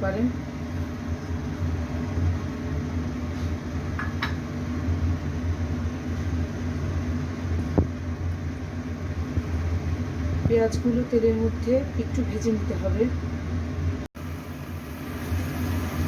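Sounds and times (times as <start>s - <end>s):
onions sizzling in a frying pan: 14.2s - 16.0s.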